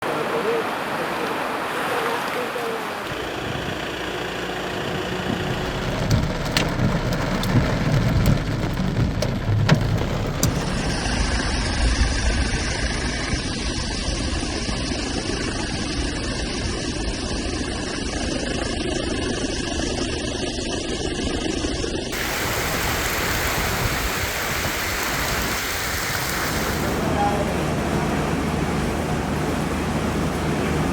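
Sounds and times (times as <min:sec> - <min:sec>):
heavy rain and floodwater rushing: 0:00.0 - 0:13.3, 0:22.1 - 0:30.9
low rumble: 0:03.1 - 0:18.4.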